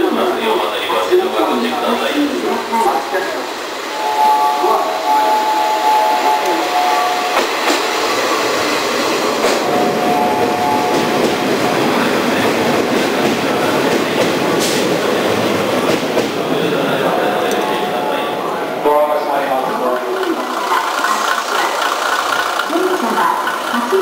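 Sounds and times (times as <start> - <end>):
train wheels clattering over rails: 7.2 - 17.0, 19.6 - 24.0.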